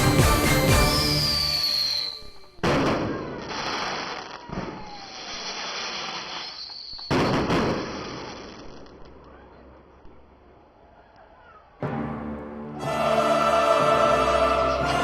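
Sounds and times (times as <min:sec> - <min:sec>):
fireworks exploding: 0:00.0 - 0:10.2.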